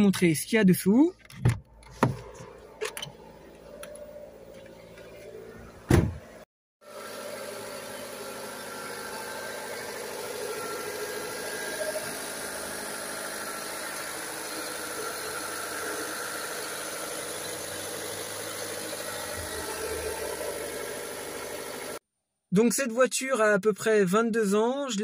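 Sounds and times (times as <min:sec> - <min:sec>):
car engine idling: 0:07.0 - 0:22.0.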